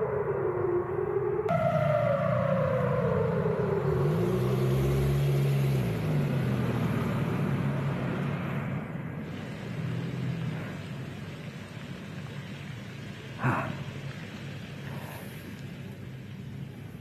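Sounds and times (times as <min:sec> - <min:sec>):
siren winding down: 0:00.0 - 0:08.9
street noise: 0:00.0 - 0:17.0
vehicle engine: 0:01.5 - 0:17.0.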